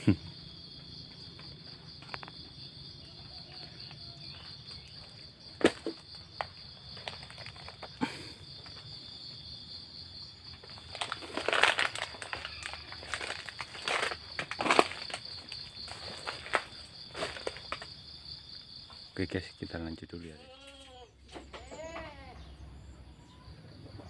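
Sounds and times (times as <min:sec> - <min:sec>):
insects chirring: 0:00.0 - 0:24.0
footsteps crunching dry leaves: 0:10.6 - 0:17.9.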